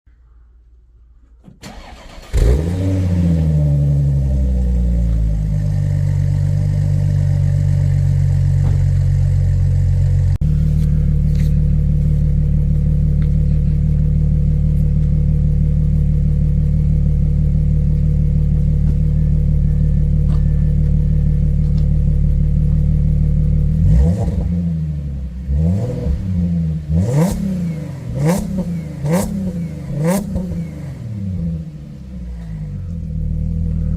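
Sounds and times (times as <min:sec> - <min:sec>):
car engine cranking and starting: 0:01.2 - 0:33.9
car engine cold idling: 0:01.3 - 0:25.5, 0:26.6 - 0:33.9
engine revving from throttle blips: 0:01.6 - 0:08.3, 0:22.4 - 0:33.9.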